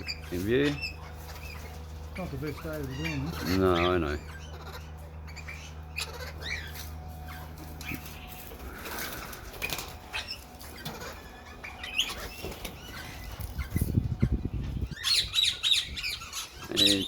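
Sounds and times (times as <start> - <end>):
parrots chirping and squawking: 0.0 - 17.0
wing flapping: 7.7 - 11.1.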